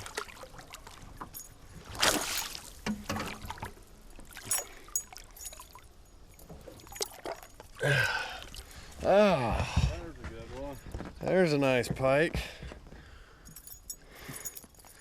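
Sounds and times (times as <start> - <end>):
water splashing against a boat: 0.0 - 10.5.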